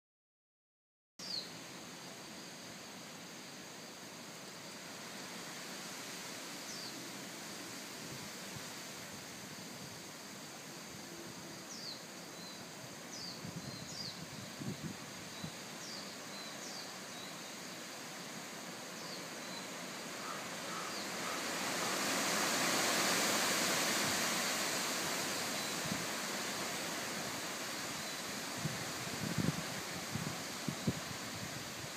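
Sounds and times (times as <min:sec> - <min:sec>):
strong wind through trees: 0:01.2 - 0:31.9.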